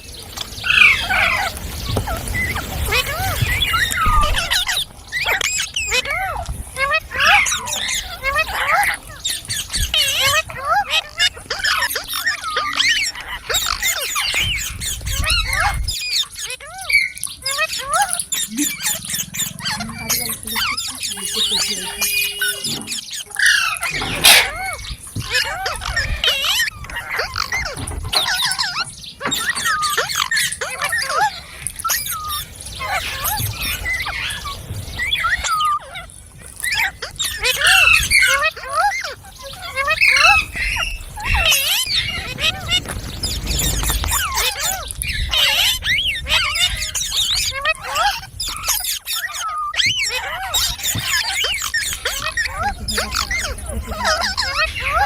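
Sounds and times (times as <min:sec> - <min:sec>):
parrot chattering: 0:18.0 - 0:23.0, 0:40.0 - 0:40.6
parakeet chattering and whistling: 0:20.9 - 0:24.6, 0:40.0 - 0:41.0.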